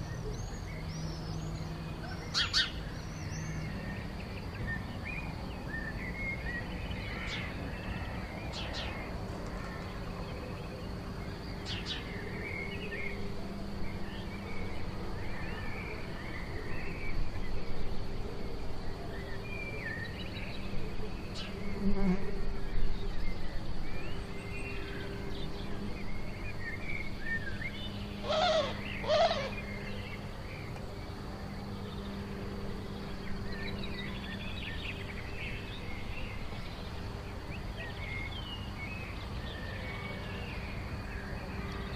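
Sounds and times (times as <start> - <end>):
birds chirping and calling: 0.0 - 13.2, 24.0 - 30.8
harsh bird calls: 0.0 - 13.3, 24.2 - 30.7
steady low buzz: 2.8 - 41.9.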